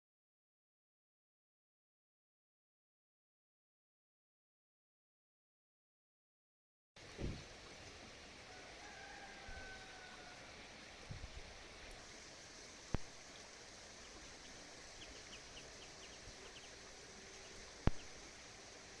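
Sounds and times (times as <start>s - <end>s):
outdoor background noise: 7.0s - 19.0s.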